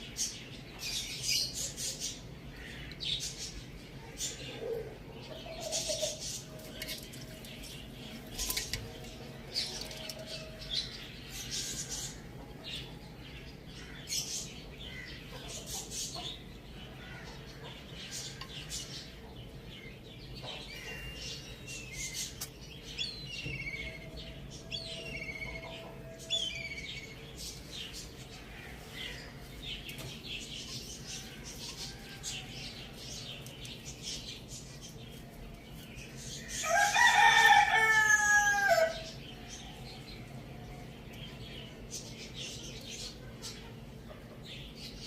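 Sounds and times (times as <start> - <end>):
chickens chirping: 0.0 - 45.0
chickens scratching and pecking: 5.6 - 12.3, 27.3 - 38.0.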